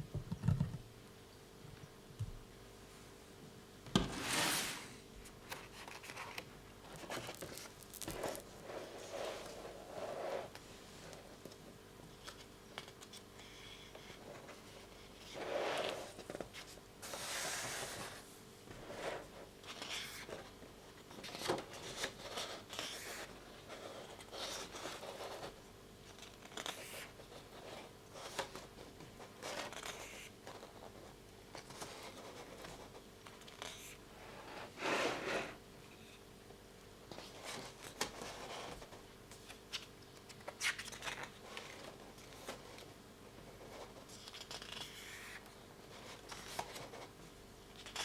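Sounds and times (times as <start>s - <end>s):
paper and packaging rustling: 4.0s - 9.6s
book pages turning: 4.0s - 9.8s, 37.1s - 42.9s, 43.7s - 47.1s.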